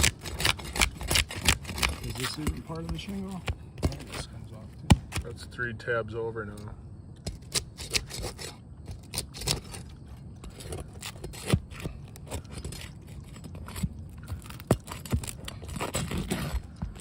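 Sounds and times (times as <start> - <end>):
shingles cracking and snapping: 0.0 - 4.3, 10.7 - 17.0
shingles scraping: 0.0 - 5.5, 7.2 - 17.0.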